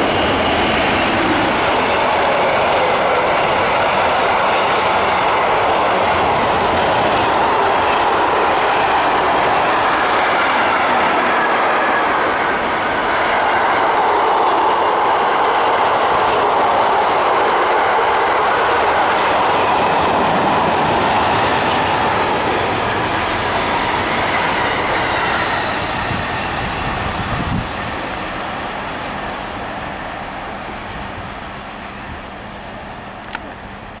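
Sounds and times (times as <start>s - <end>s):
freight train rumbling past: 0.0s - 34.0s.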